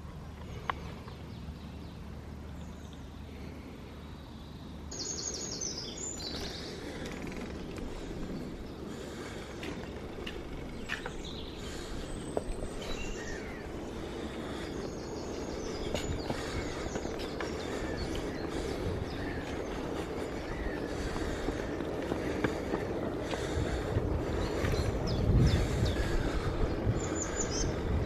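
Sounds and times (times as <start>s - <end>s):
bicycle rolling rumble: 0.0s - 28.0s
wind noise: 7.0s - 28.0s.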